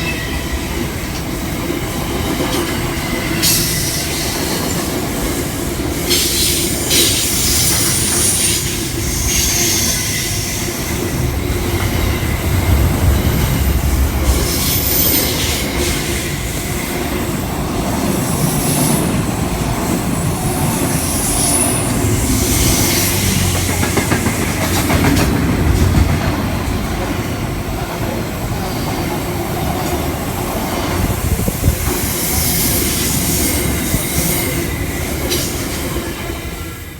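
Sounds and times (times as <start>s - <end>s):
train rumbling on rails: 0.0s - 36.9s.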